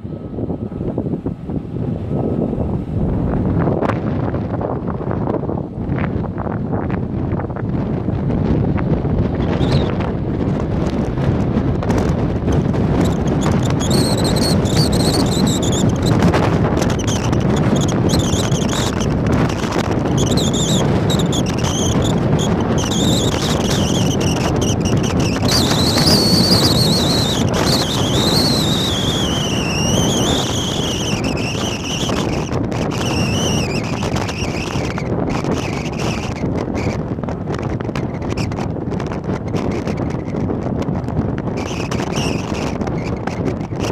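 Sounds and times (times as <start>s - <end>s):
jet engines rumbling and whining: 0.0s - 43.9s
wind buffeting microphone: 0.0s - 43.9s.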